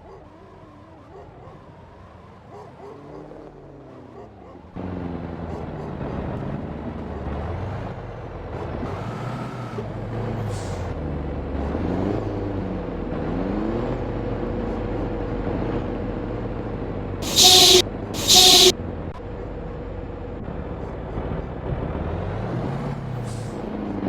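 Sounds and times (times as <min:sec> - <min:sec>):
loud horn blasts: 0:17.2 - 0:18.7.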